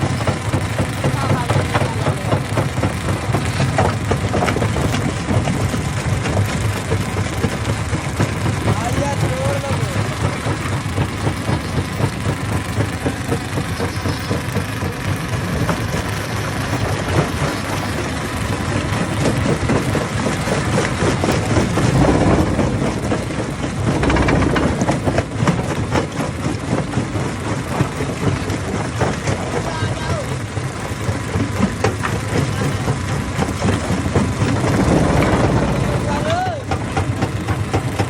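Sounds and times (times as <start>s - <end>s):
stone crusher drone: 21.4s - 25.6s, 32.7s - 38.0s.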